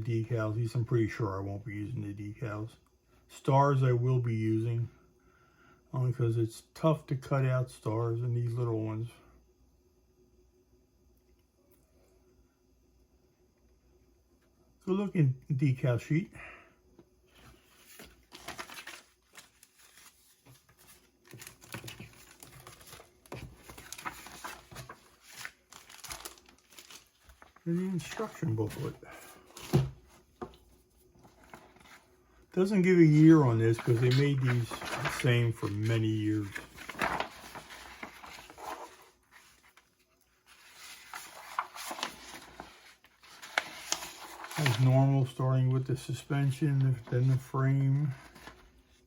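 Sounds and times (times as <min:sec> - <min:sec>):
packaging rustling and crinkling: 0:17.5 - 0:32.1, 0:33.2 - 0:45.0.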